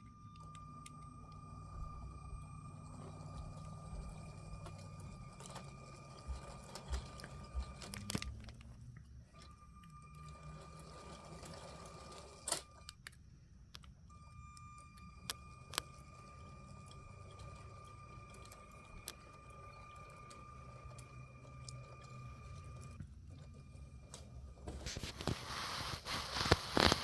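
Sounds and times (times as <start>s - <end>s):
small electric motor whine: 0.0s - 27.0s
wheels rattling on track: 1.3s - 8.8s.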